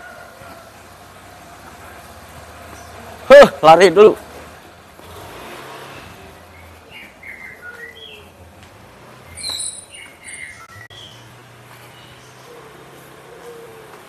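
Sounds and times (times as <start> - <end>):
small birds chirping: 0.5 - 5.0, 6.1 - 14.0
shrill bird call: 6.9 - 8.3, 9.3 - 11.2.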